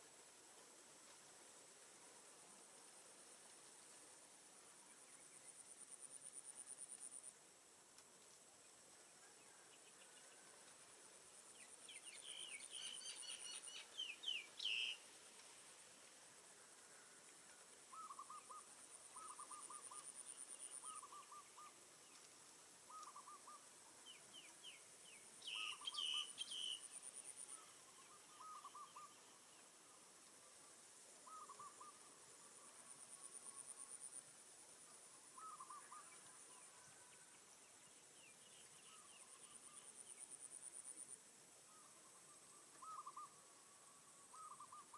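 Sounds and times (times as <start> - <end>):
bird chirping: 11.6 - 15.0, 22.9 - 29.4
bird hooting: 17.9 - 18.6, 42.8 - 43.4.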